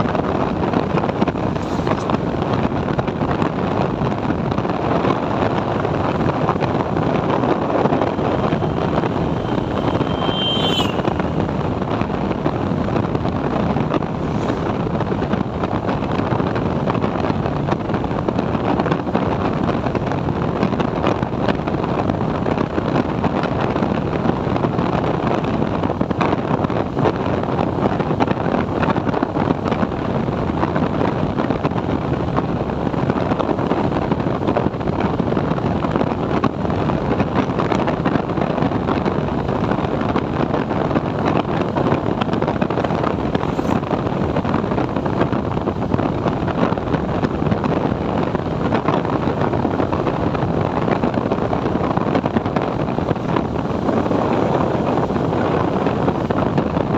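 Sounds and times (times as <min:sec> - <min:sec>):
motorcycle engine and road noise: 0:00.0 - 0:56.9
wind buffeting microphone: 0:00.0 - 0:56.9
short high tone: 0:08.0 - 0:11.3.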